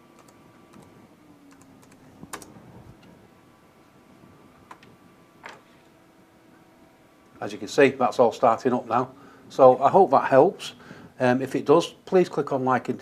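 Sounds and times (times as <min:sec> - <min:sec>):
computer keyboard clicks: 0:00.2 - 0:00.9, 0:01.5 - 0:02.5.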